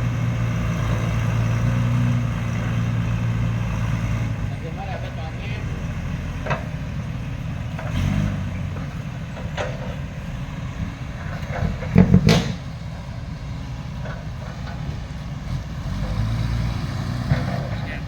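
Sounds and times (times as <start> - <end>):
heavy truck engine running: 0.0 - 18.0
truck clanking and rattling: 0.0 - 18.0
loud metal clatter: 11.2 - 12.8.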